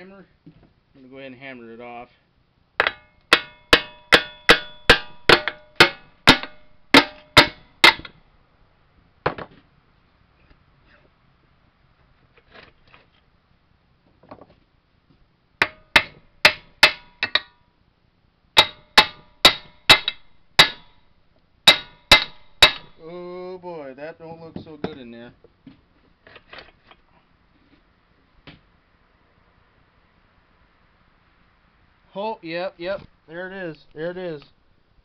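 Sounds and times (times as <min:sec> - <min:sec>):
hammer striking metal crankcase: 0:02.8 - 0:08.1, 0:15.6 - 0:17.6, 0:18.6 - 0:21.0, 0:21.7 - 0:23.0.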